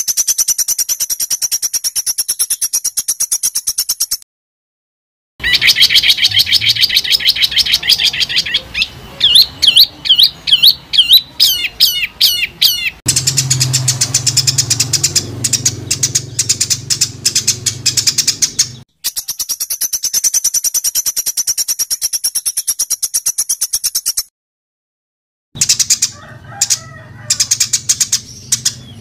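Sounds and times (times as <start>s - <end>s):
high fast bird trill: 0.0s - 4.2s, 5.4s - 24.3s, 25.6s - 29.0s
rapid bird chirps: 0.0s - 4.2s, 5.4s - 24.3s, 25.6s - 29.0s
swooping whistled bird notes: 5.4s - 24.3s.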